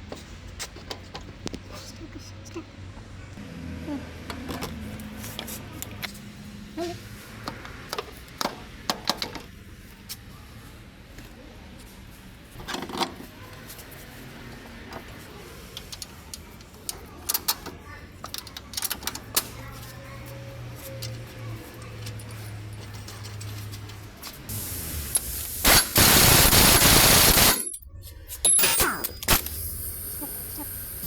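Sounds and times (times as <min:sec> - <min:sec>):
metallic clicks and clinks: 0:26.8 - 0:31.0.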